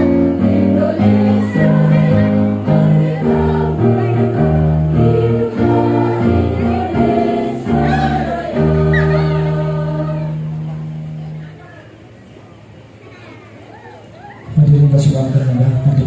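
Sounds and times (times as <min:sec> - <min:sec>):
women's choir singing: 0:00.0 - 0:11.0.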